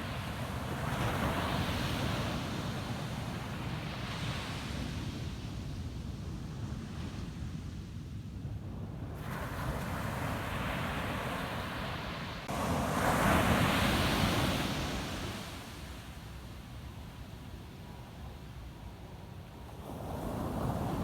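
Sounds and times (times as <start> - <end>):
wind rumble on microphone: 0.0 - 21.0
ocean waves breaking on beach: 9.2 - 16.6, 19.6 - 21.0.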